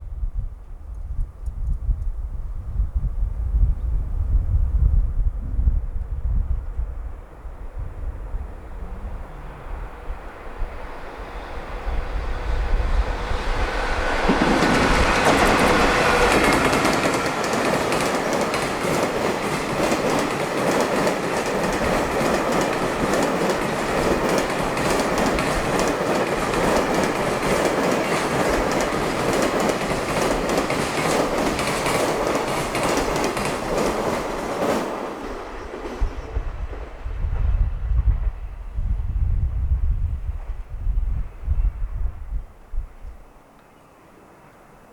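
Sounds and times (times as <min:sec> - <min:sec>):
low train rumble: 0:00.0 - 0:44.9
train wheels clattering over joints: 0:13.6 - 0:35.4.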